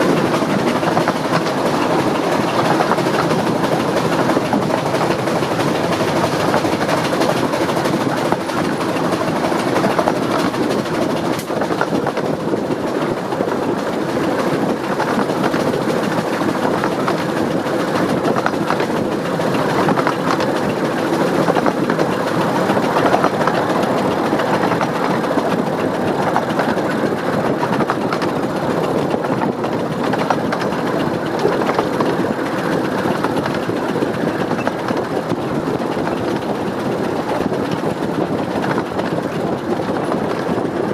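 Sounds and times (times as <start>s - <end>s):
carriages clattering on rails: 0.0s - 40.9s
steam locomotive chimney exhaust: 0.0s - 40.9s.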